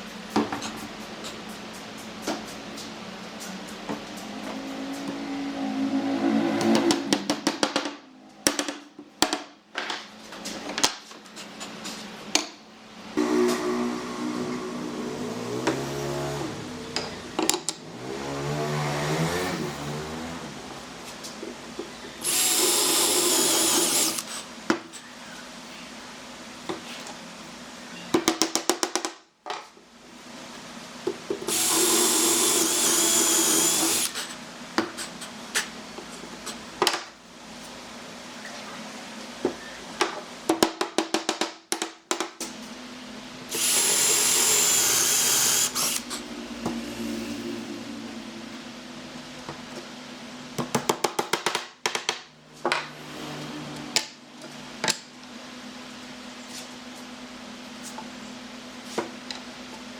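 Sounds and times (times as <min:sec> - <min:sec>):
power tool running: 0:13.2 - 0:20.8, 0:22.2 - 0:24.4, 0:31.5 - 0:34.4, 0:43.5 - 0:48.0.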